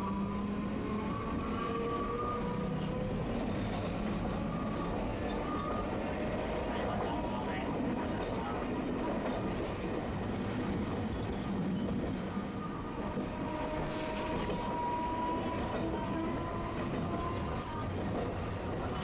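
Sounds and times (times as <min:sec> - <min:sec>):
streetcar rumbling on tracks: 0:00.0 - 0:19.0.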